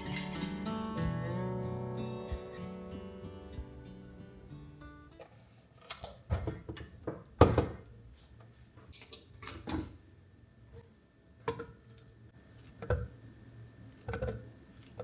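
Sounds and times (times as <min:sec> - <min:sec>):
doors or drawers knocking shut: 0:07.4 - 0:07.8.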